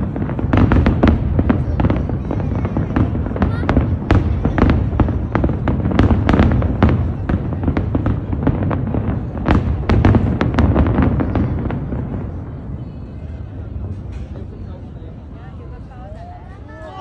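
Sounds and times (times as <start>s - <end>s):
fireworks bangs and cracks: 0.0s - 16.8s.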